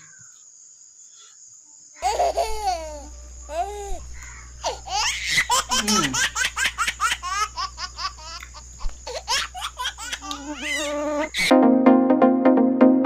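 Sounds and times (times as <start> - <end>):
electronic music with steady beat: 11.5 - 13.0.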